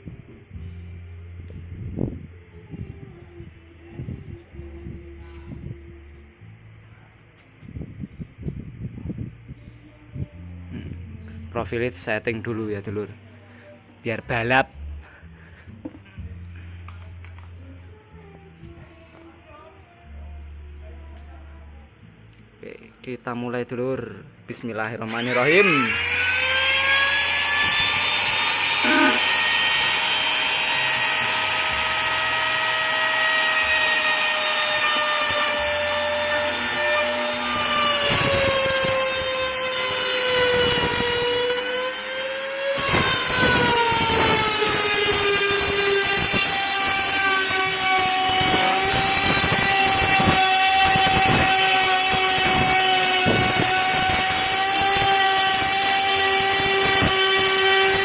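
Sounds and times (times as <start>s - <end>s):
router bit grinding wood: 25.0s - 58.0s
electric wood router whining: 25.1s - 58.0s.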